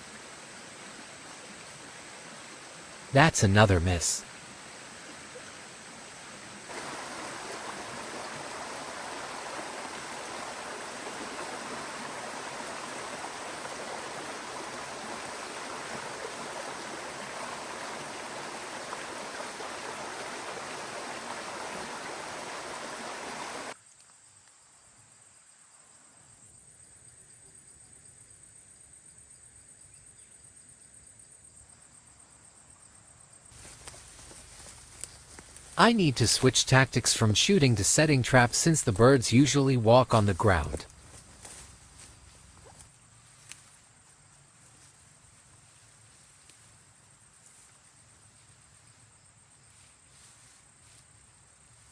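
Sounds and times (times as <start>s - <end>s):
stream water rushing: 0.0s - 23.8s, 33.6s - 41.2s.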